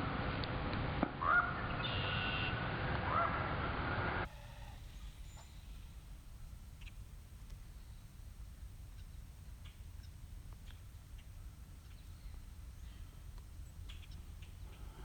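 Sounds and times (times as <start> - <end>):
low wind rumble: 0.0 - 15.0
bird calls: 1.2 - 2.5, 4.2 - 8.2, 8.9 - 15.0.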